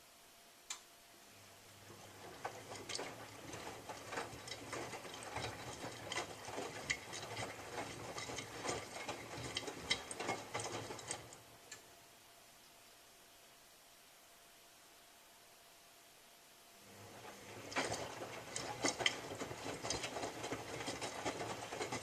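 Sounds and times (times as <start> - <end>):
washing machine motor humming: 1.3 - 11.8, 16.8 - 22.0
tumbling load clicking and knocking: 2.3 - 11.4, 17.6 - 22.0.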